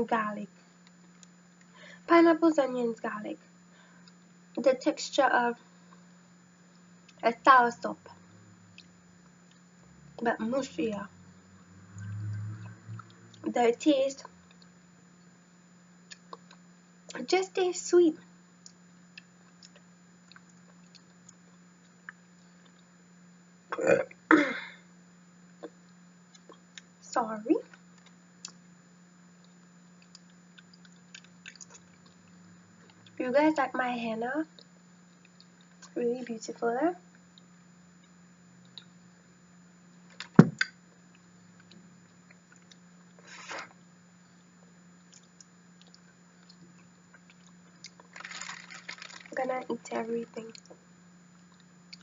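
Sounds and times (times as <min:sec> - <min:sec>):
steady low hum: 0:00.0 - 0:52.0
soft fruit being chewed: 0:08.7 - 0:09.8, 0:14.2 - 0:15.3, 0:16.0 - 0:17.2, 0:18.6 - 0:23.0, 0:25.6 - 0:27.0, 0:29.3 - 0:33.2, 0:34.5 - 0:36.0, 0:37.1 - 0:39.2, 0:40.2 - 0:48.8, 0:50.5 - 0:52.0
woman belching: 0:23.7 - 0:24.7
sharp knock: 0:40.4 - 0:40.7.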